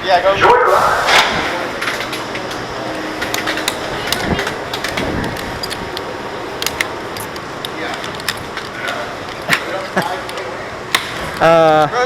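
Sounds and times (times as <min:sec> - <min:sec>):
steady crowd hubbub: 0:00.0 - 0:12.0
seat restraints clicking: 0:03.2 - 0:11.8.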